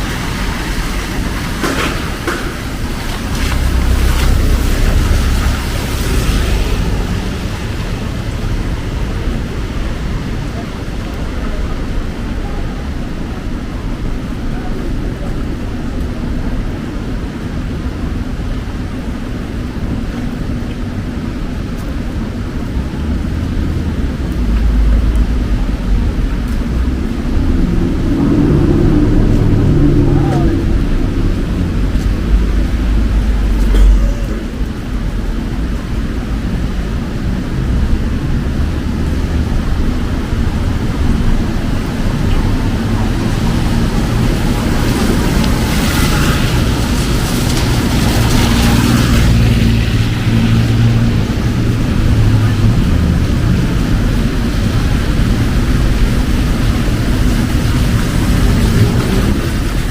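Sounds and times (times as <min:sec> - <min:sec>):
heavy rain: 0:00.0 - 0:59.9
street traffic: 0:00.0 - 0:59.9
deep low rumble: 0:21.7 - 0:59.9.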